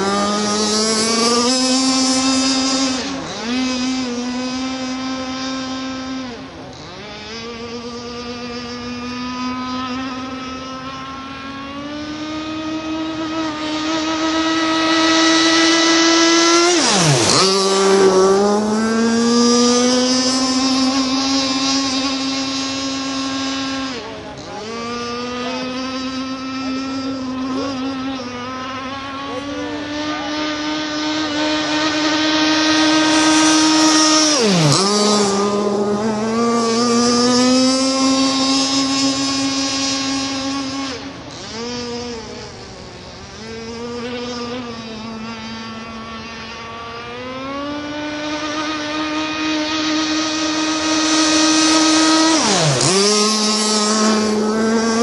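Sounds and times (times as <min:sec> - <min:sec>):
model boat motor running: 0:00.0 - 0:55.0.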